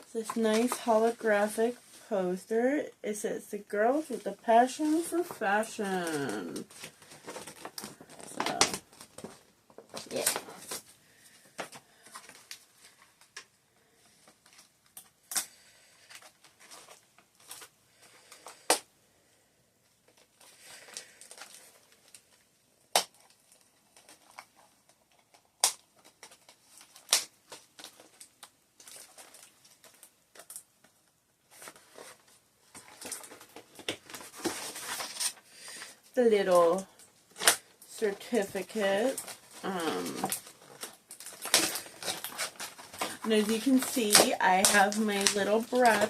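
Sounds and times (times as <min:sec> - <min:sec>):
packaging rustling and crinkling: 0:00.0 - 0:02.2, 0:03.7 - 0:18.9, 0:19.8 - 0:46.0
packaging taps and clicks: 0:40.2 - 0:46.0.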